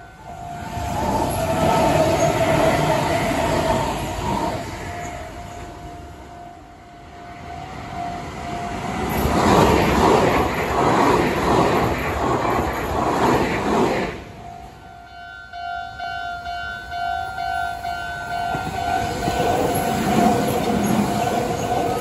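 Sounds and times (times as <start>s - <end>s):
level crossing warning bell: 0.0s - 3.1s, 4.2s - 9.3s, 14.3s - 22.0s.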